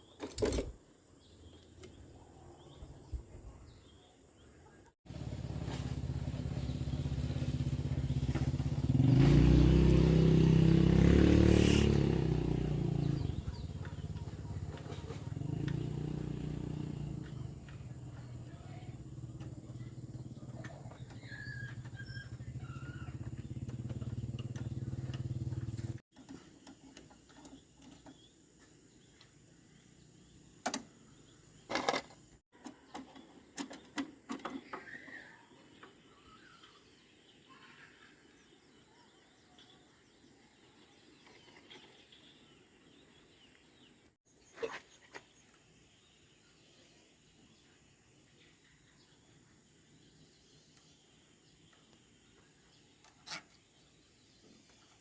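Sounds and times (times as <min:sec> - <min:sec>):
birds chirping: 0:00.0 - 0:55.0
tractor engine running: 0:13.0 - 0:26.0.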